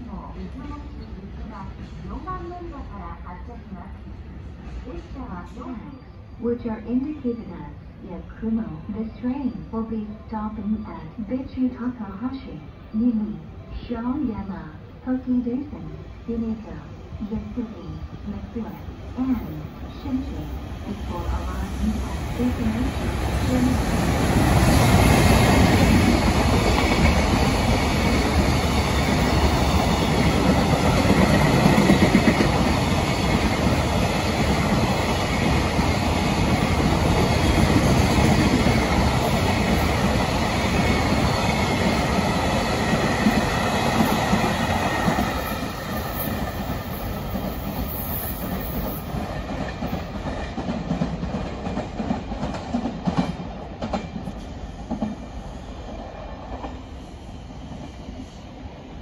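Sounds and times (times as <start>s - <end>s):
freight train rolling rumble: 14.6s - 59.0s.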